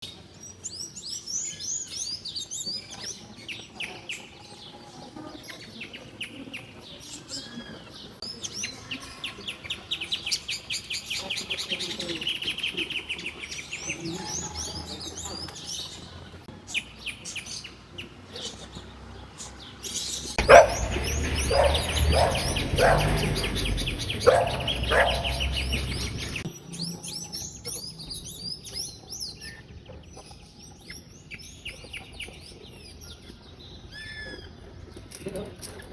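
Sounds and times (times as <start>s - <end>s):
birds chirping and singing: 0.6s - 33.4s
low rumble with sharp knocks: 20.4s - 26.4s.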